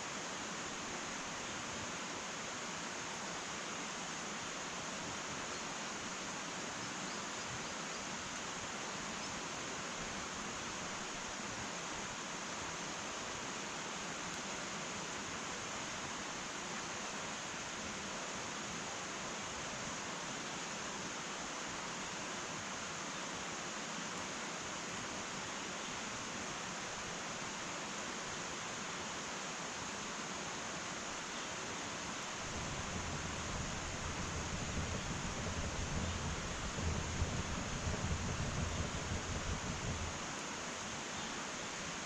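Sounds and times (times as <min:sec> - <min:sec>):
wood fire hissing: 0:08.0 - 0:42.0.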